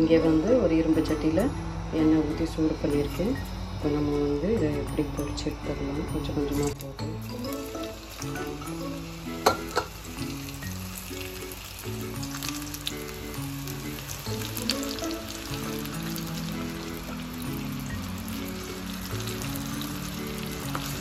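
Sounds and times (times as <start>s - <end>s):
soft background music: 0.0s - 21.0s
food sizzling in deep fryer oil: 6.2s - 21.0s.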